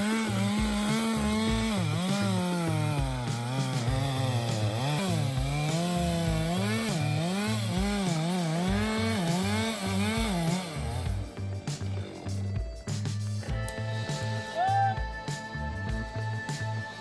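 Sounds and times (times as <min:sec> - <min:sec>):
chainsaw cutting wood: 0:00.0 - 0:12.8.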